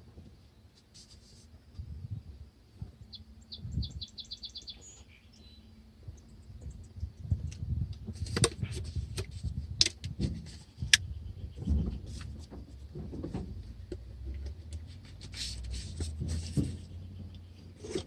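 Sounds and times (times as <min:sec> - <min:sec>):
small bird chirping: 0:03.0 - 0:07.1.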